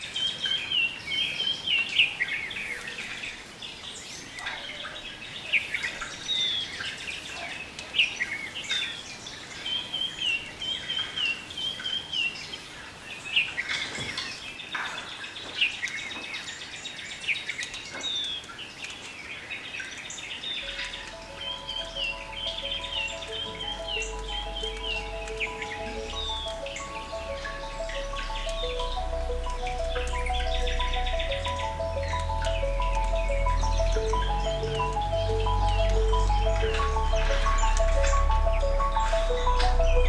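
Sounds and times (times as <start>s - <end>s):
birds chirping: 20.4s - 40.0s.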